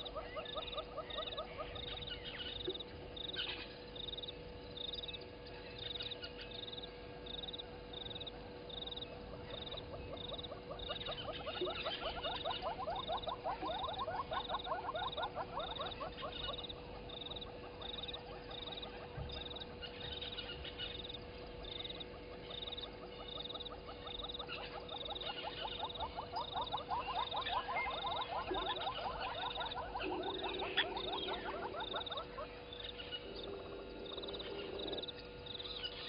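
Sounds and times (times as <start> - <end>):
frog rapid pulsed calls: 0.0 - 36.0
frog high chirps: 8.9 - 36.0.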